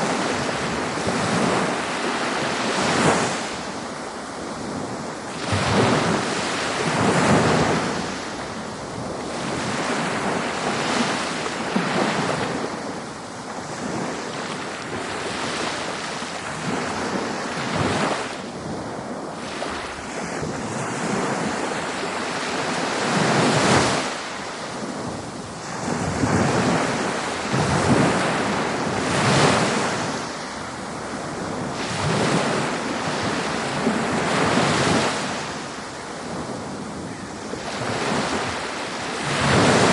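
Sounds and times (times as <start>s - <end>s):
ocean surf breaking: 0.0s - 39.9s
wind on microphone: 0.0s - 39.9s.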